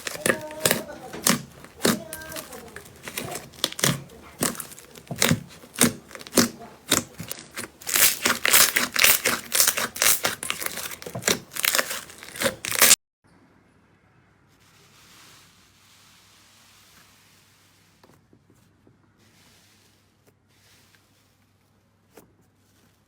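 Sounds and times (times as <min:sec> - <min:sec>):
slime crackling pops: 0:00.0 - 0:13.0.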